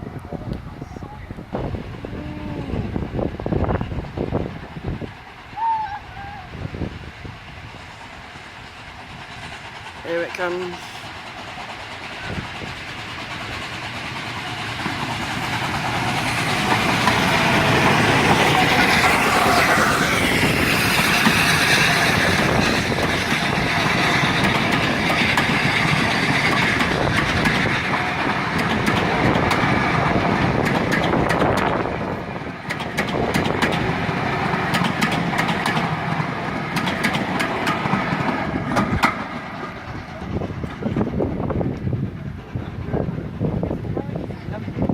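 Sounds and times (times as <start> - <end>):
steam train passing: 0.0 - 44.9
wheels clicking over rail joints: 9.6 - 42.0.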